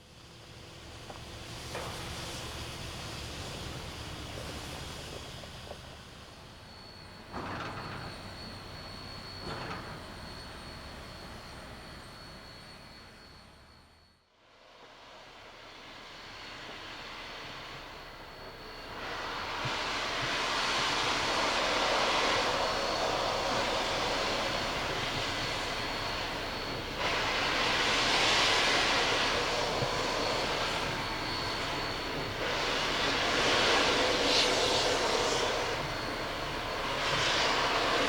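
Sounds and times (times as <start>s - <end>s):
steam locomotive hissing: 14.8s - 38.0s.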